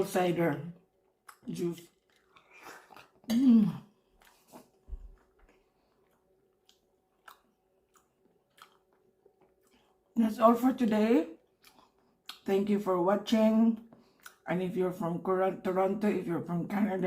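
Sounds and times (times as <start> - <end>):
person chewing: 1.0 - 10.1, 11.4 - 12.4, 14.0 - 14.4.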